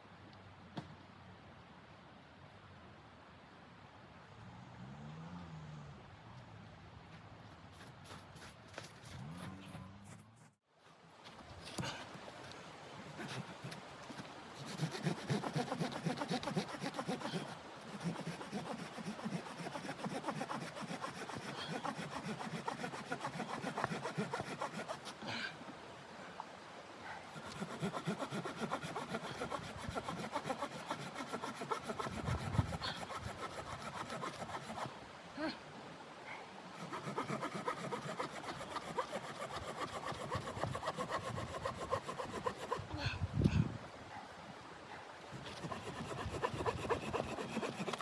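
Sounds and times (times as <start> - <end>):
saw cutting wood: 13.1 - 25.2, 27.3 - 34.9, 36.8 - 42.9, 45.4 - 48.0.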